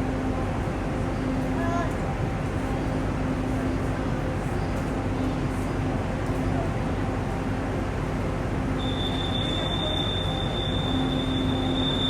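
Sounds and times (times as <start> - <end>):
high steady squeal: 8.8 - 12.0.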